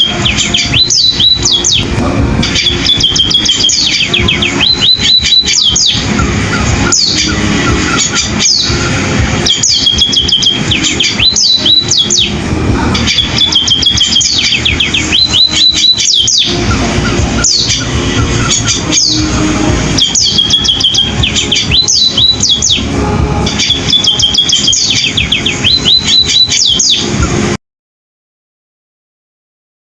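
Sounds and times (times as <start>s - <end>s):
bird singing chirps and trills: 0.0s - 27.6s.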